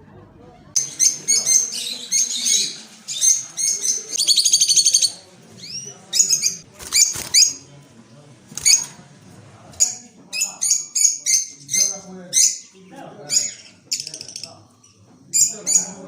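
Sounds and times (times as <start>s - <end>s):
songbird chirps and trills: 0.7s - 7.8s.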